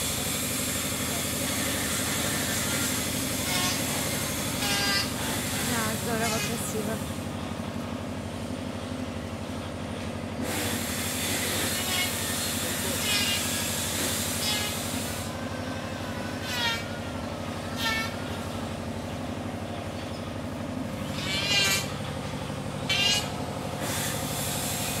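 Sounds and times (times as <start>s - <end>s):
birds squawking: 21.0s - 22.0s, 22.8s - 23.4s.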